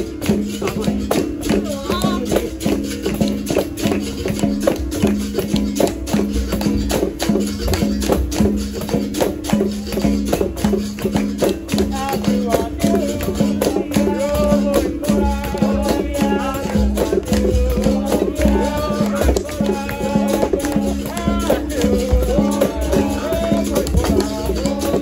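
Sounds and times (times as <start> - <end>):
group singing: 0.0 - 3.4, 11.5 - 25.0
hand drum strikes: 0.0 - 25.0
shaken rattle: 0.0 - 25.0.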